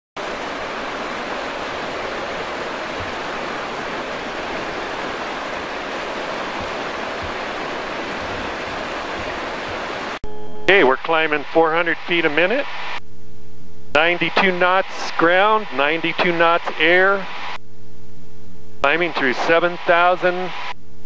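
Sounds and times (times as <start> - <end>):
white-water river rushing: 0.2 - 10.2.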